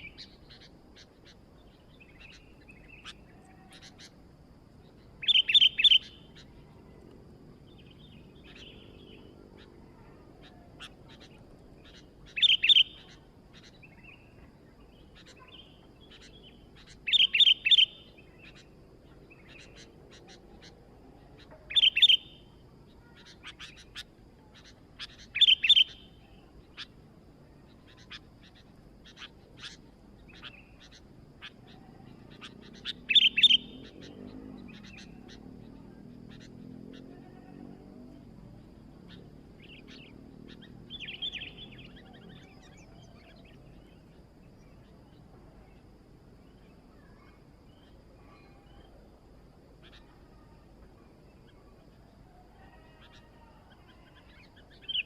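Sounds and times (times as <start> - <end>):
bulbul calling: 0.0 - 4.2, 4.8 - 7.0, 7.7 - 27.0, 27.7 - 37.5, 39.0 - 44.0
faint bird chirps: 0.0 - 55.0.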